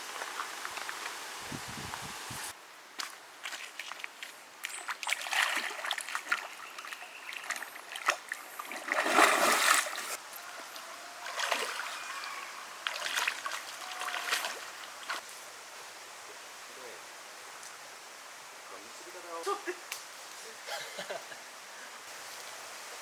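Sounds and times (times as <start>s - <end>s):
creek running water: 0.0s - 23.0s
water splashing: 3.4s - 10.2s, 11.2s - 15.2s.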